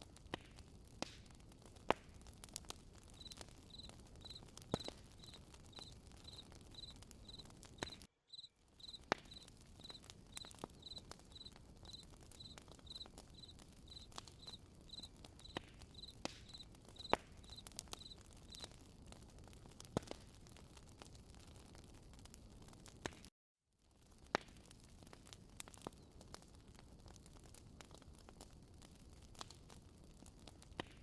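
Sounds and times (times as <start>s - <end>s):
campfire cracking and popping: 0.0s - 23.3s, 23.9s - 31.0s
crickets chirping: 3.2s - 7.4s, 8.3s - 18.6s.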